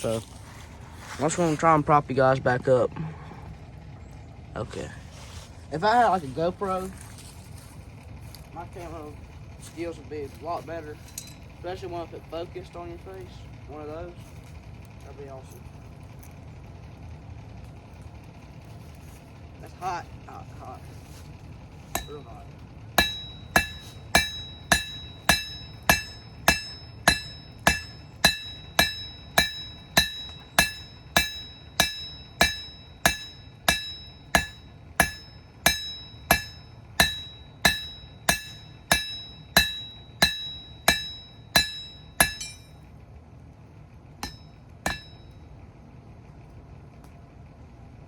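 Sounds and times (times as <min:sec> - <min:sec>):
hammer ringing on anvil: 0:11.0 - 0:11.4, 0:21.9 - 0:42.9, 0:44.2 - 0:45.5.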